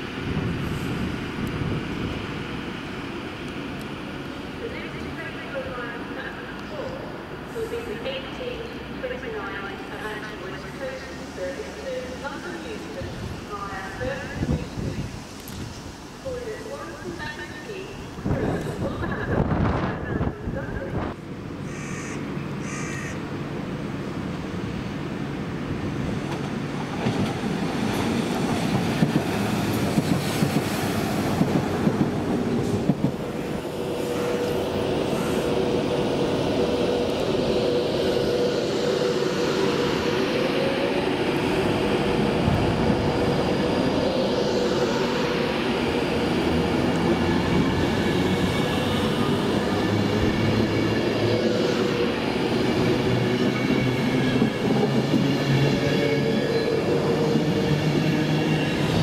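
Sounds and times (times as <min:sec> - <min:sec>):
train clacking on rails: 0:26.1 - 0:59.0.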